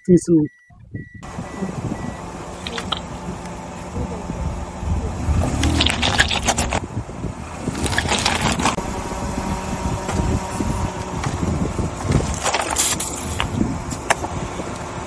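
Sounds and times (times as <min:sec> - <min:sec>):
car tyres rolling: 0:01.2 - 0:15.0.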